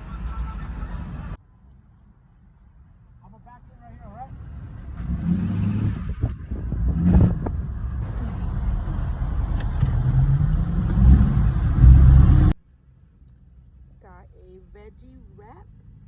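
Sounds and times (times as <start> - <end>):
car engine: 0.0 - 16.0
low road rumble: 0.0 - 16.0.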